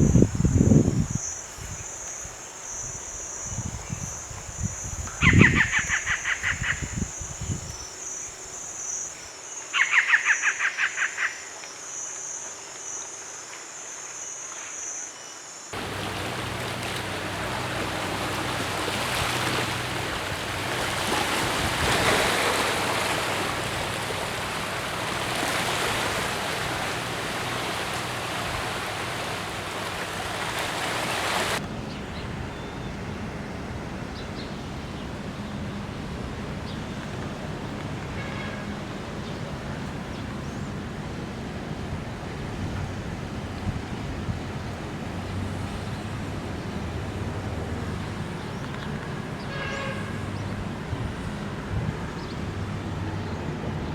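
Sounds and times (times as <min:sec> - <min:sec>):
even rushing noise: 0:15.8 - 0:31.7.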